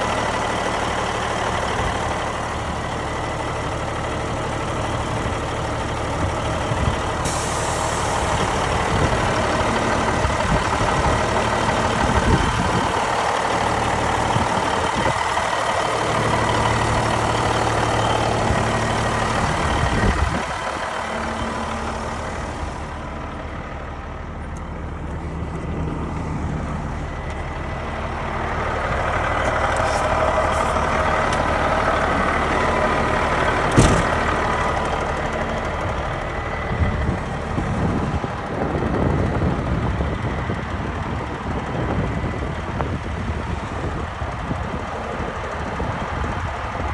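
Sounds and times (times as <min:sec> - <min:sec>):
diesel truck engine running: 0:00.0 - 0:46.9
sharp knock: 0:33.7 - 0:34.2.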